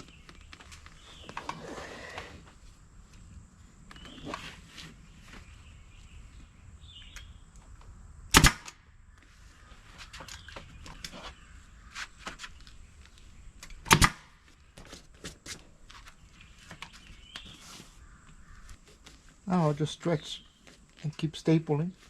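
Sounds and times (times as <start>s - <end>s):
rustling of material: 0.0s - 6.5s
staple gun firing: 8.3s - 8.8s, 13.9s - 14.2s.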